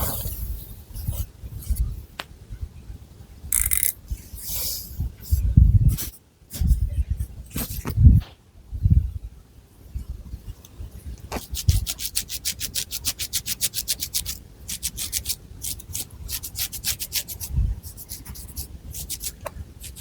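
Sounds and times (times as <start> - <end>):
fingernails scratching through hair: 11.4 - 20.0.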